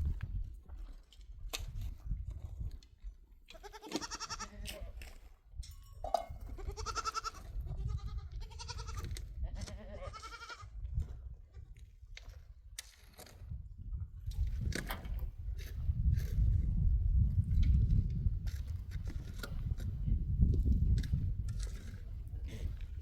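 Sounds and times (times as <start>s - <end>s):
livestock bleating: 3.5s - 5.0s, 6.6s - 10.7s.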